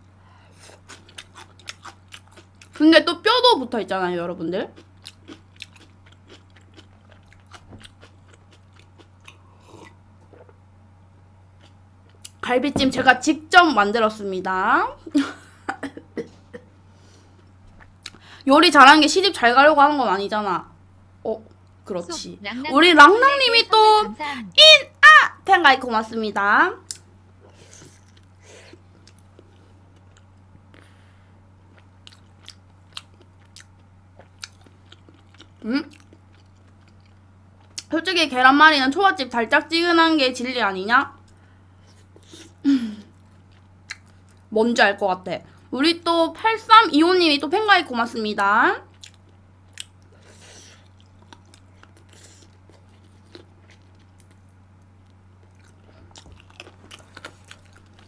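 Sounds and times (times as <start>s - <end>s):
low steady hum: 0.0s - 58.0s
chewing food: 0.6s - 2.8s, 4.7s - 10.6s, 26.9s - 30.8s, 31.7s - 37.9s, 43.1s - 44.5s, 48.9s - 58.0s.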